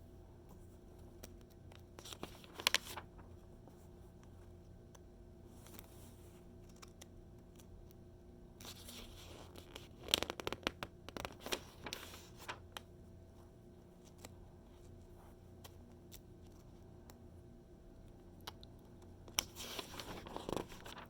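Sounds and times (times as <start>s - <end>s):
magazine page turning: 1.2s - 3.4s, 8.6s - 12.8s, 19.3s - 21.0s.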